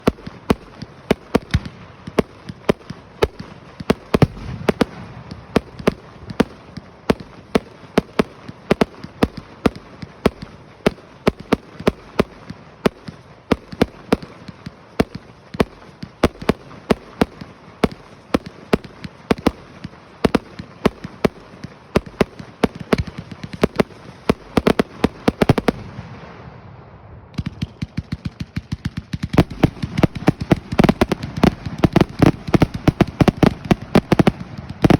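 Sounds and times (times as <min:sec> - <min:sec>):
sharp pops and bangs: 0:27.3 - 0:34.9.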